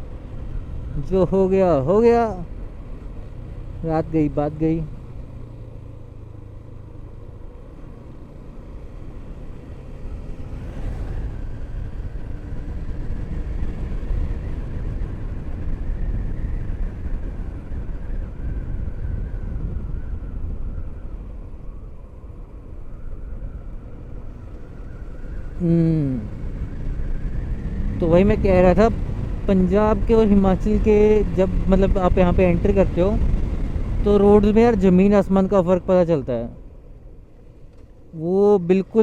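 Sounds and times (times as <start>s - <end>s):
motorcycle engine rumble: 0.0s - 39.0s
road and wind noise: 0.0s - 39.0s.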